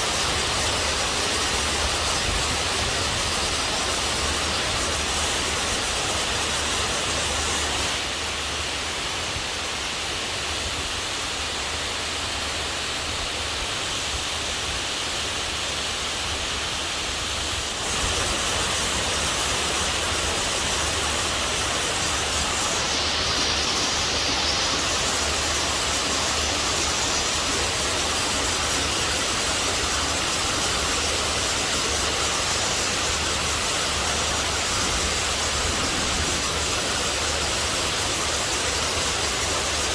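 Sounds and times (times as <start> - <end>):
heavy rain pouring: 0.0 - 9.0, 17.2 - 39.9.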